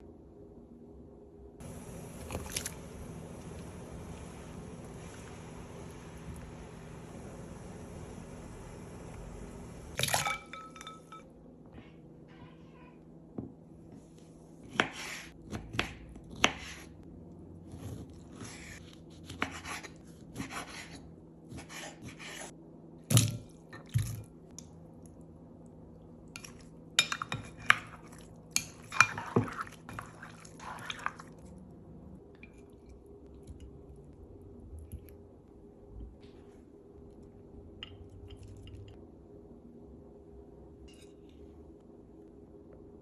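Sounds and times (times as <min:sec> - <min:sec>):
utensils and dishes clinking: 0:10.0 - 0:11.3.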